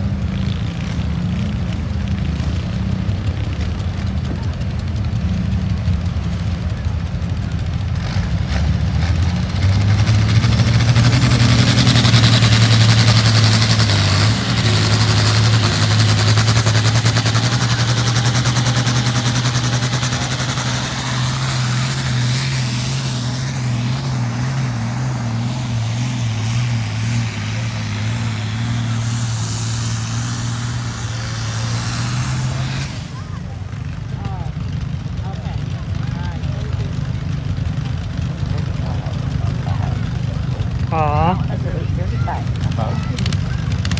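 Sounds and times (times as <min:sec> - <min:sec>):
engine droning: 0:00.0 - 0:43.9
rushing noise: 0:09.4 - 0:33.8.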